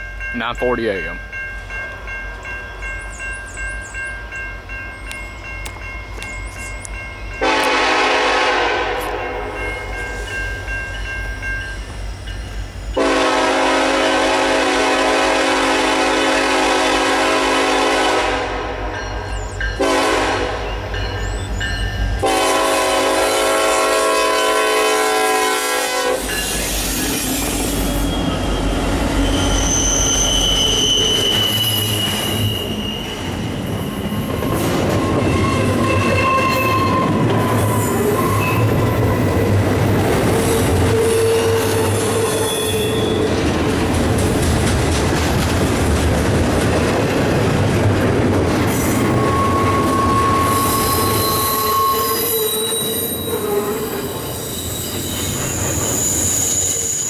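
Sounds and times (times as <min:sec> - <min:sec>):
diesel locomotives rumbling: 0:00.0 - 0:57.0
locomotive horn chord: 0:07.4 - 0:09.5, 0:13.0 - 0:18.9, 0:19.8 - 0:20.7, 0:22.2 - 0:26.3
high-pitched wheel squeals: 0:26.4 - 0:39.4, 0:40.4 - 0:43.3, 0:48.9 - 0:57.0
train wheels clattering on rails: 0:30.6 - 0:57.0.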